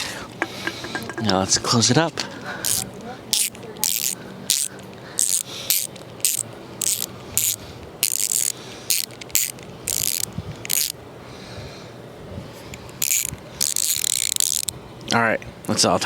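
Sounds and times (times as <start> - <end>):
ratchet wrench clicking: 2.6 - 11.0, 12.8 - 14.7.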